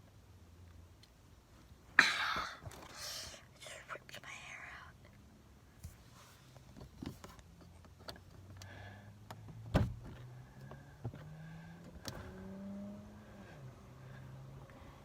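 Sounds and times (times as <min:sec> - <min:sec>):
loud thump: 0:09.7 - 0:10.1.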